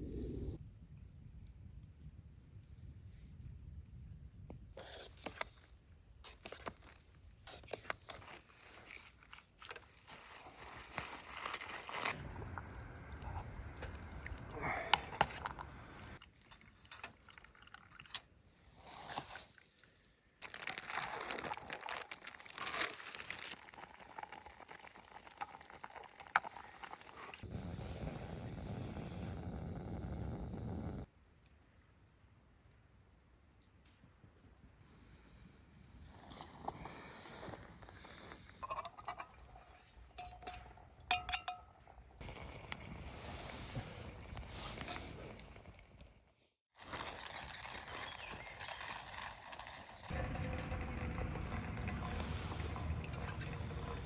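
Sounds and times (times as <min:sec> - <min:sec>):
crinkling and crunching handling: 0:04.8 - 0:15.8, 0:19.6 - 0:27.5, 0:46.8 - 0:54.0.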